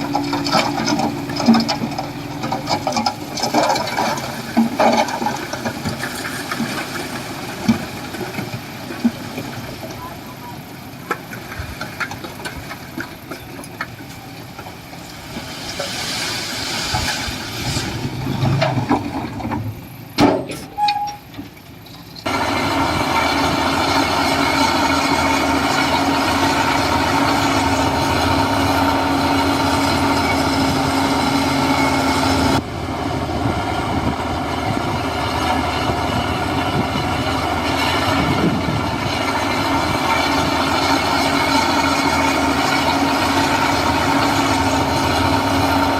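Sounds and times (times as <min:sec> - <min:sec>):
heavy diesel engine running: 0:00.0 - 0:45.9
engine knocks: 0:10.6 - 0:15.4.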